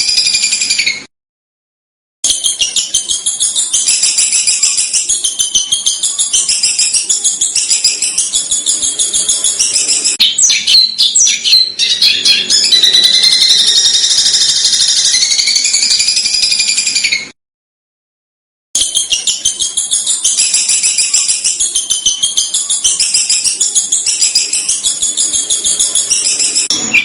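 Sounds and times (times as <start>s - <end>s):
high bird trill: 0.0s - 1.1s, 2.3s - 17.4s, 18.8s - 27.0s
songbird singing harsh high notes: 2.3s - 17.3s.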